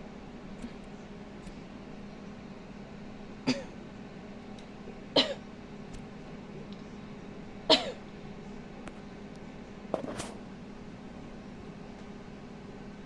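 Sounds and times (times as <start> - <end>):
person coughing: 3.5 - 3.8, 5.2 - 5.4, 7.7 - 8.0.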